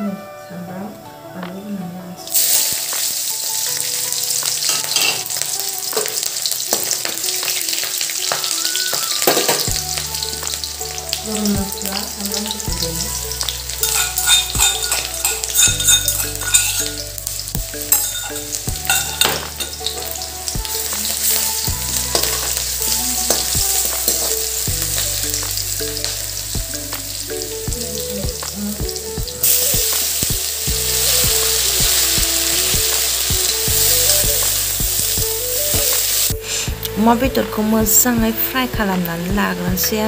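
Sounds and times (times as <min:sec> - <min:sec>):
onions sizzling in hot oil: 0:02.3 - 0:36.9.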